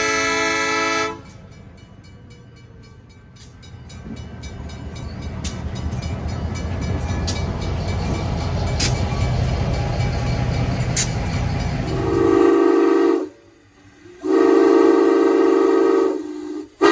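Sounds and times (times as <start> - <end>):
locomotive air horn chord: 0.0 - 1.4, 11.9 - 13.6, 14.2 - 16.9
locomotive engine rumble: 0.0 - 16.9.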